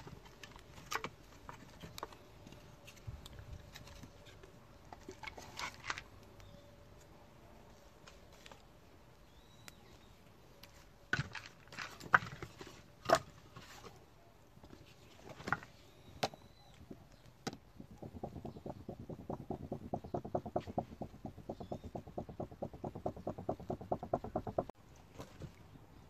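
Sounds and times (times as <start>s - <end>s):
firewood knocking: 17.9s - 24.7s.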